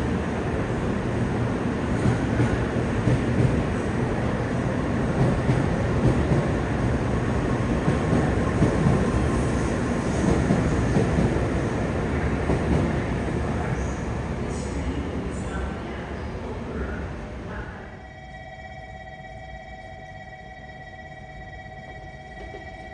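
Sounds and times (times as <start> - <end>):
train rumbling: 0.0 - 22.9.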